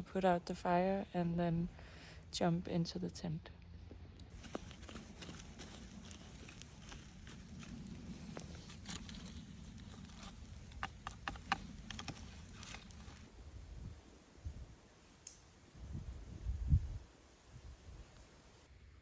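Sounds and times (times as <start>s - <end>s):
low steady rumble: 0.0s - 14.9s
campfire crackling and popping: 4.3s - 13.3s.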